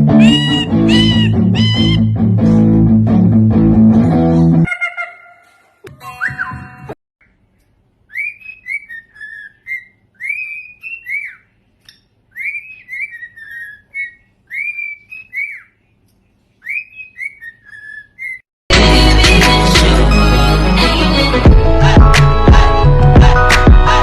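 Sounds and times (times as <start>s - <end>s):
parrot whistling a tune: 0.1s - 2.1s, 8.1s - 11.5s, 12.3s - 15.8s, 16.6s - 18.4s.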